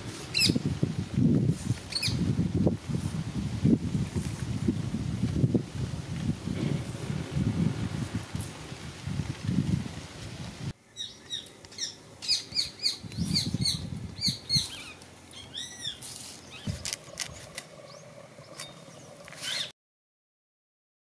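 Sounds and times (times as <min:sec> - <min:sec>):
small birds chirping: 0:00.3 - 0:00.6, 0:01.9 - 0:02.2, 0:10.8 - 0:19.7.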